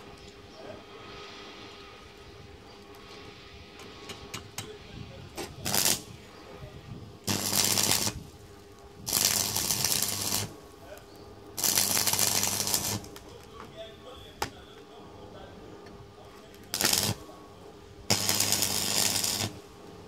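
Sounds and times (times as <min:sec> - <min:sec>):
arc welding crackle: 0:05.4 - 0:06.6, 0:07.2 - 0:13.6, 0:16.3 - 0:20.0
welder humming: 0:05.4 - 0:14.9, 0:15.6 - 0:20.0.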